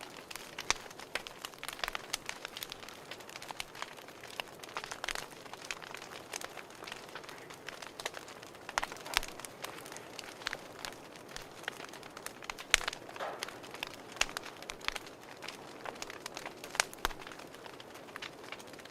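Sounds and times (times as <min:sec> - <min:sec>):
wood fire crackling and popping: 0:00.0 - 0:18.9.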